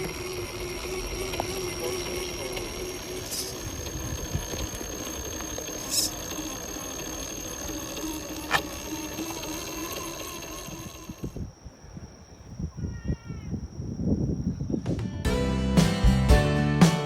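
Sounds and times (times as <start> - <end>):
small electric motor whine: 0.0 - 11.5
outdoor background noise: 0.0 - 15.2.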